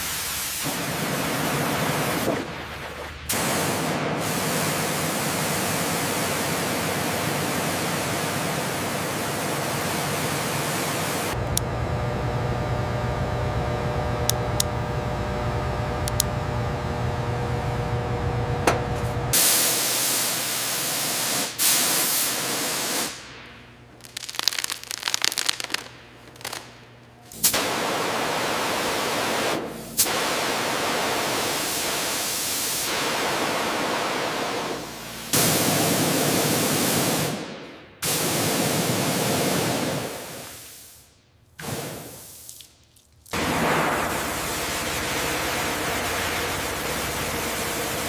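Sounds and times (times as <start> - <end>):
loud steady hissing: 0.0 - 48.0
low machine hum: 0.9 - 19.4, 23.2 - 32.2, 43.4 - 48.0.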